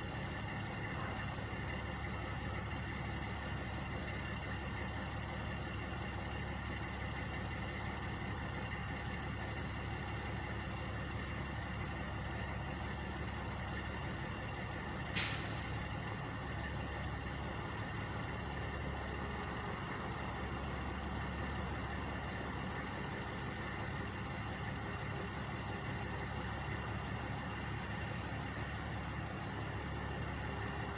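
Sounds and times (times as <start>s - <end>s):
diesel truck engines idling: 0.0s - 30.9s
short sharp hiss: 15.2s - 15.7s.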